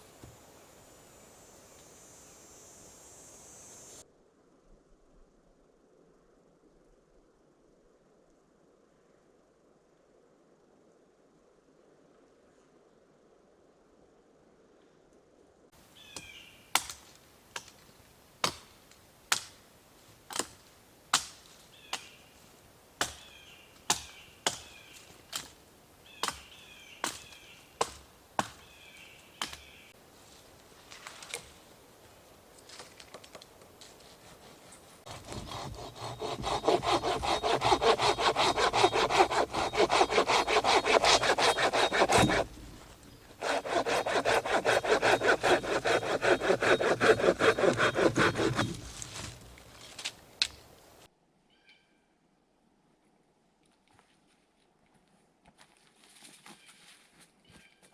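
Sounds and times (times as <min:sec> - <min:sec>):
hand saw cutting wood: 0:34.0 - 0:50.6.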